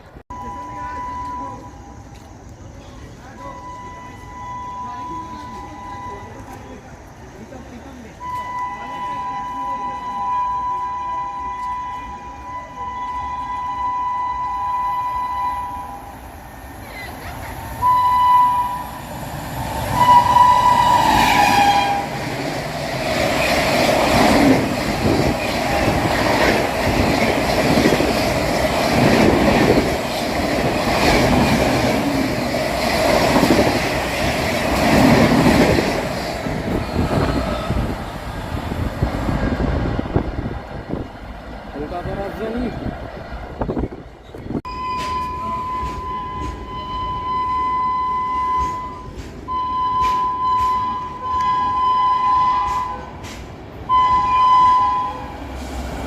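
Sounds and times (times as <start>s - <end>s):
train horn blasts: 8.2s - 16.2s, 17.8s - 19.1s, 19.9s - 22.3s, 44.7s - 53.3s, 53.9s - 55.4s
train wheels clattering over rails: 20.8s - 38.1s, 52.6s - 53.8s.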